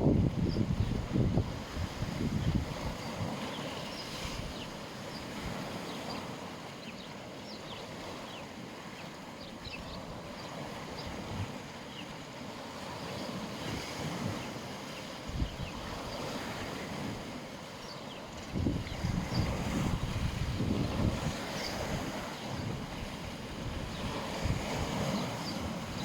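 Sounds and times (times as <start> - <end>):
wind buffeting microphone: 0.0 - 5.9, 13.3 - 17.5, 18.1 - 26.0
sea waves washing onto beach: 0.0 - 26.0.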